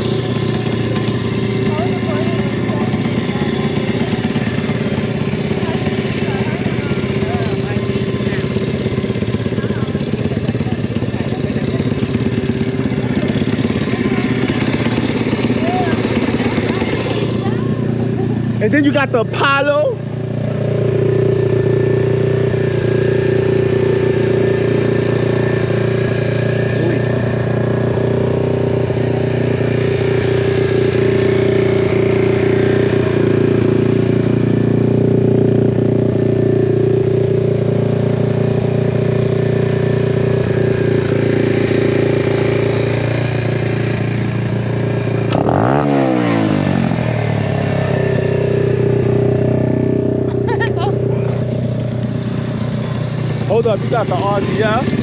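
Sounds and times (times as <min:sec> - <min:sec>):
small motorbike engine idling: 0:00.0 - 0:55.0.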